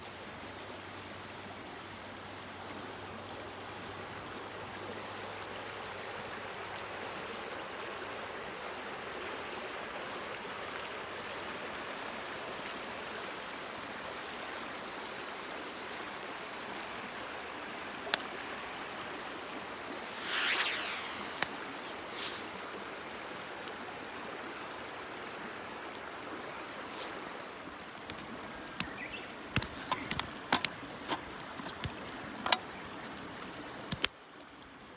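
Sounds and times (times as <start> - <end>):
flowing water rushing: 3.7 - 34.9
brief swishes: 20.0 - 22.7
sharp clicks: 28.0 - 33.3.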